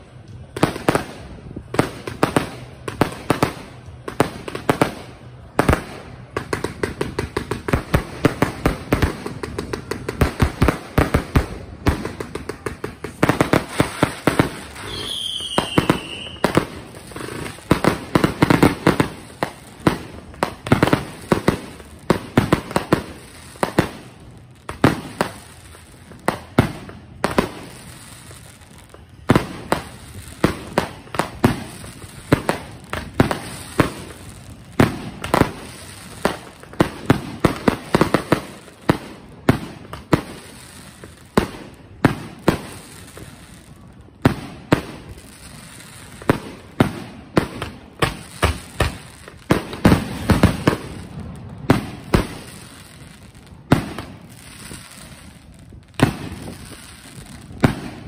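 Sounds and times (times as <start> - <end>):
fireworks launching and bursting: 0.0 - 58.0
falling firework whistle: 13.7 - 16.8.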